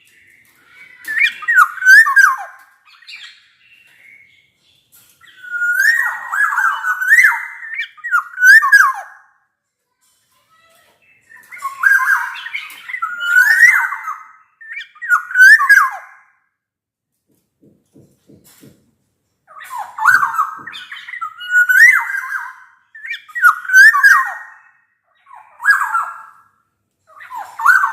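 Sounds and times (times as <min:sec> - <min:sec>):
bird singing fluty whistles: 0:05.3 - 0:09.1, 0:19.9 - 0:26.3.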